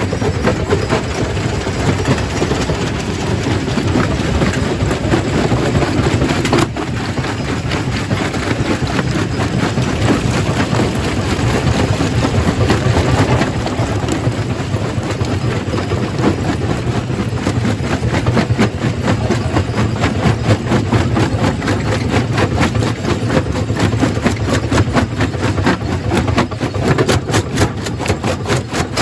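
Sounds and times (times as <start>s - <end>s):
heavy machine drone: 0.0s - 18.0s.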